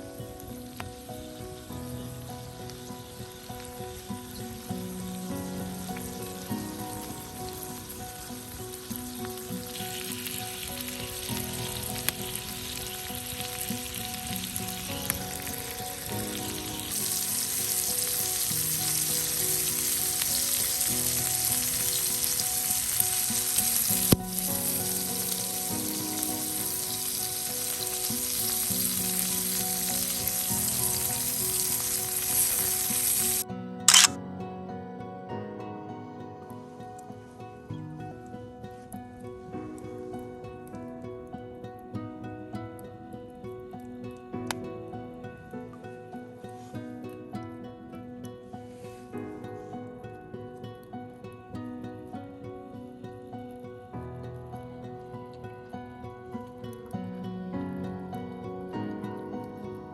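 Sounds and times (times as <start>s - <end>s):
food sizzling in a frying pan: 0.0s - 34.1s
sharp click: 33.9s - 34.2s.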